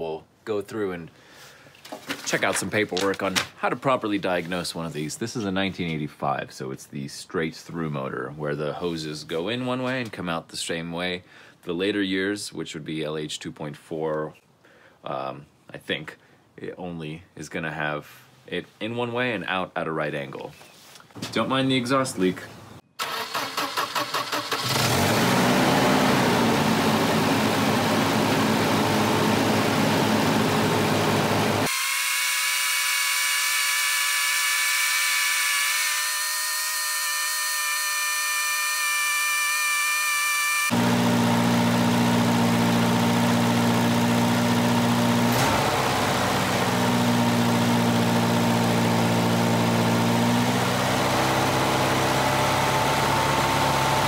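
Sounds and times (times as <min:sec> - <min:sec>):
car engine starting and idling: 0:23.0 - 0:31.7, 0:40.7 - 0:54.0.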